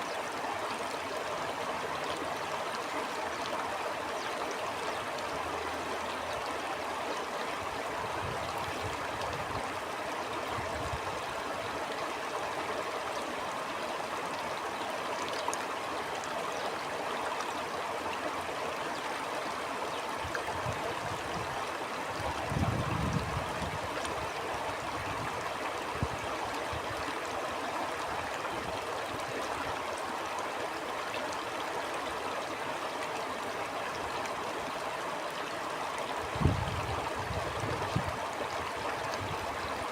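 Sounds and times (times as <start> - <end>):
stream flowing over stones: 0.0 - 39.9
low rumble of wind gusts: 22.2 - 24.3, 36.3 - 38.4.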